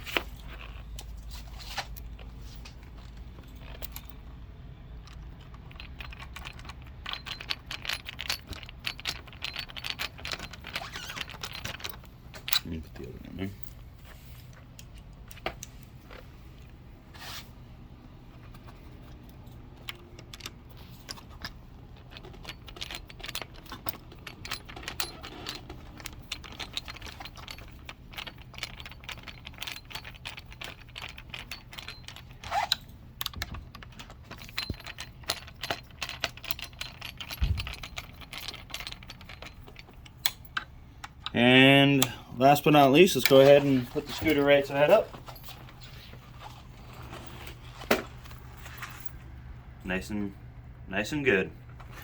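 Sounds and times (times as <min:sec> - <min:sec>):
screwdriver clicking and rattling: 0:05.0 - 0:12.8, 0:18.5 - 0:42.2.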